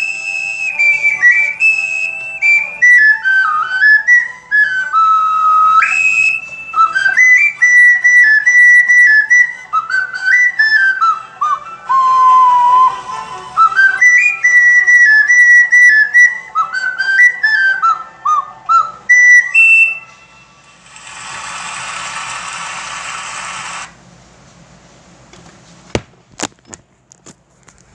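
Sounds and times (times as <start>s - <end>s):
person whistling a tune: 0.0s - 20.4s
steady hiss: 19.4s - 26.3s.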